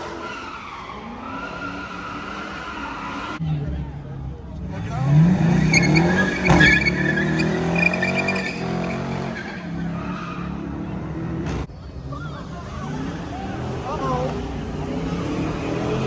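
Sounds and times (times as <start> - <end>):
tyres squealing and skidding: 0.0 - 3.4, 4.7 - 16.0
car engine revving hard: 4.7 - 11.2.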